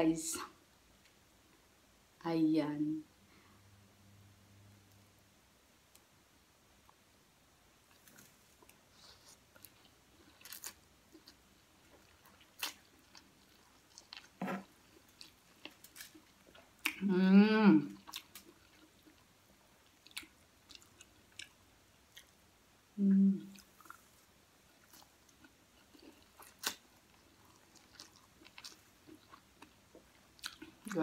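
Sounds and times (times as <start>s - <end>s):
person chewing noodles: 7.9s - 17.0s, 18.0s - 22.4s, 23.5s - 31.0s
person humming: 17.0s - 17.9s, 23.0s - 23.5s.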